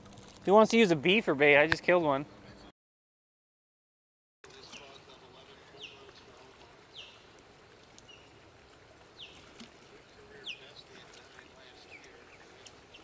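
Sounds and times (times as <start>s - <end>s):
faint outdoor background: 0.0s - 2.7s, 4.4s - 13.0s
small bird chirping: 6.9s - 7.3s, 8.0s - 8.4s, 9.2s - 9.6s, 10.4s - 11.0s.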